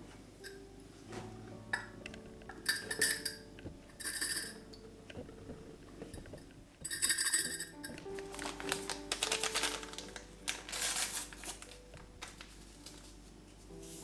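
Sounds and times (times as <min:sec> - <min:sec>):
kitchenware clinks and scrapes: 0:02.5 - 0:04.8, 0:06.1 - 0:08.1.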